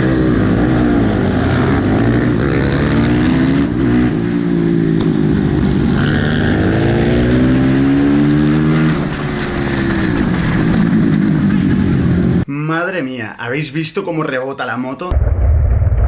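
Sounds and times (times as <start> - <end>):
motorcycle engine accelerating: 0.0 - 12.4.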